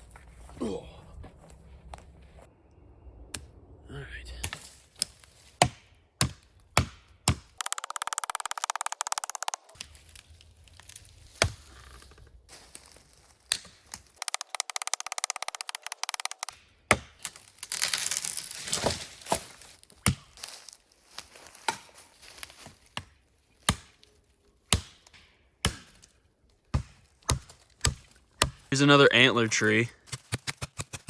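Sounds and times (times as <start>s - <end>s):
branches crunching: 4.4s - 6.8s, 7.6s - 31.0s
wood chopping: 4.4s - 9.9s, 13.5s - 17.7s, 18.7s - 20.4s, 21.6s - 22.1s, 22.9s - 24.0s, 24.7s - 28.8s, 30.0s - 31.0s.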